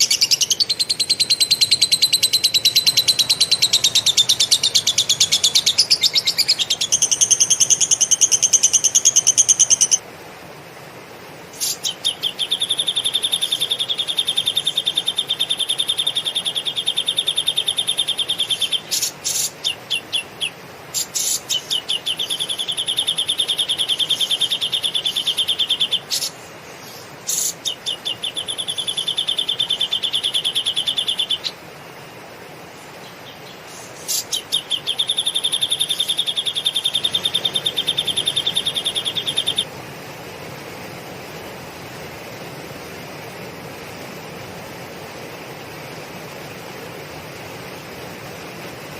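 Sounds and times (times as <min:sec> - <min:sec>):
bird singing fast rattling trills: 0:00.0 - 0:10.0, 0:11.6 - 0:31.6, 0:32.8 - 0:39.7.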